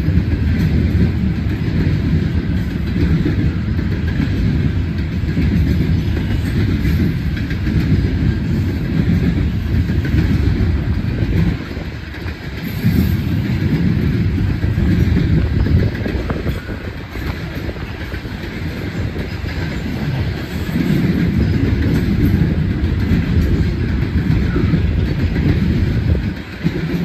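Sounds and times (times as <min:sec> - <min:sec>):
freight train wheels clattering on rails: 0:00.0 - 0:27.0.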